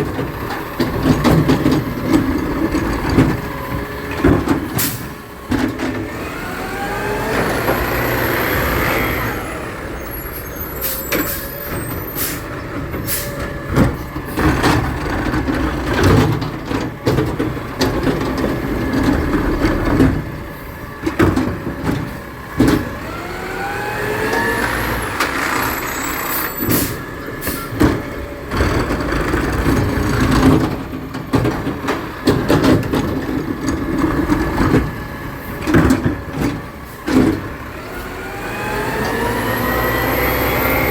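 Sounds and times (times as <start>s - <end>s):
garbage truck engine revving: 0.0s - 40.9s
metal clanks and bangs: 25.2s - 37.7s.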